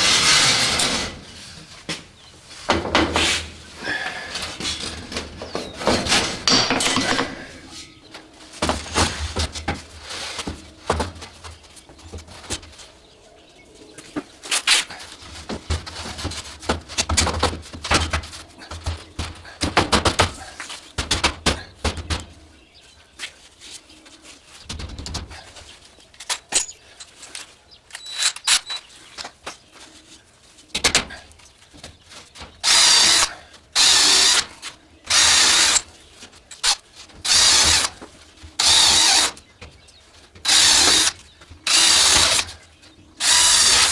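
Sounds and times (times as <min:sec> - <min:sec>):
power drill driving screws: 0:32.6 - 0:34.5, 0:35.1 - 0:35.9, 0:36.6 - 0:38.0, 0:38.6 - 0:39.4, 0:40.4 - 0:42.5, 0:43.2 - 0:43.9.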